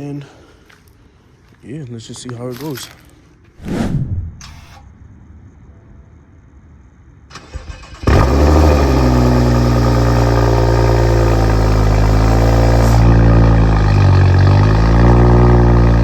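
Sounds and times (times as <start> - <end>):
engine cranking: 7.3 - 10.0
car engine idling loudly: 8.1 - 16.0.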